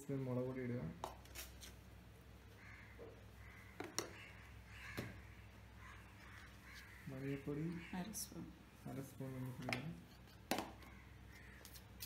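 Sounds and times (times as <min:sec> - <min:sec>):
faint bird calls: 0:02.5 - 0:08.6, 0:10.8 - 0:11.8.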